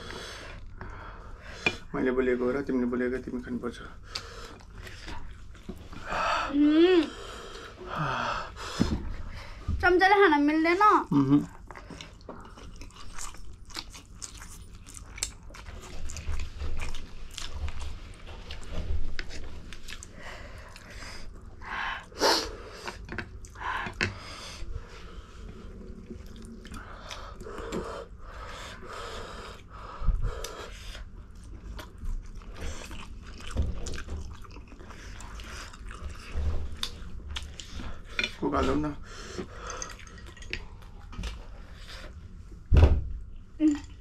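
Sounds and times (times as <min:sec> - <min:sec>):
chewing noodles and prawns: 0:11.1 - 0:21.5, 0:30.4 - 0:41.8.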